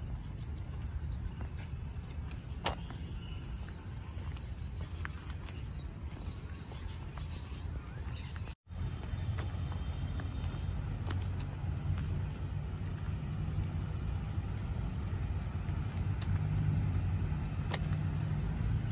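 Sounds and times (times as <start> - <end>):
low rumble: 8.8 - 18.9.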